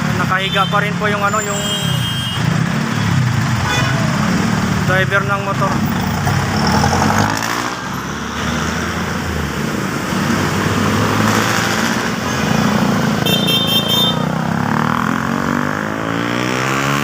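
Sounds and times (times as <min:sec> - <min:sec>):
vehicle engines running: 0:00.0 - 0:16.4
vehicle accelerating: 0:02.4 - 0:13.3, 0:14.2 - 0:17.0.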